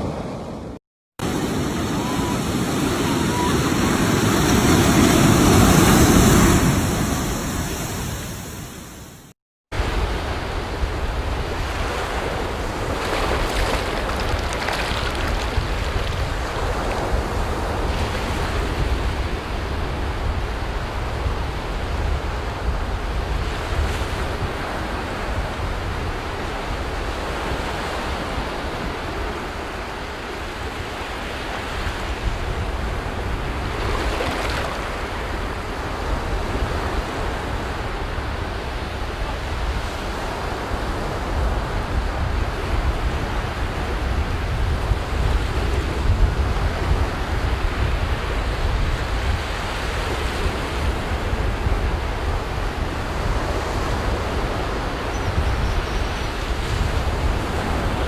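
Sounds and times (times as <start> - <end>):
ocean waves breaking: 0.0 - 21.1, 31.5 - 55.1
wind rumble on microphone: 9.8 - 58.0.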